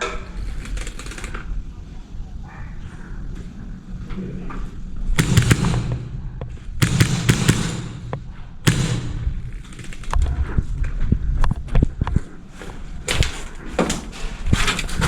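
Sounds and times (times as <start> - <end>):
airsoft guns firing: 5.2 - 10.5
small clicks: 9.5 - 10.4.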